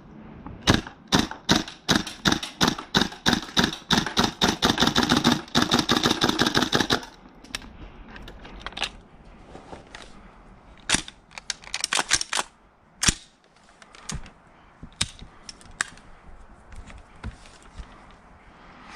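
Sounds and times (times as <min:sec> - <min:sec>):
airsoft rifle shots: 0:00.6 - 0:07.2.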